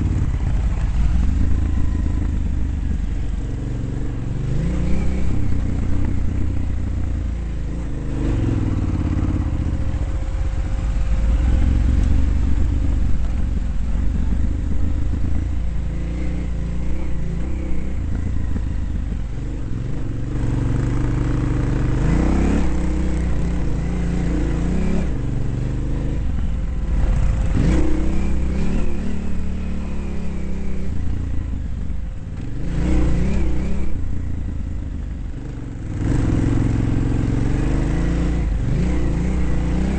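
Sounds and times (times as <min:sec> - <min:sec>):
dirt bike engine revving: 0:15.9 - 0:26.3, 0:26.9 - 0:31.1.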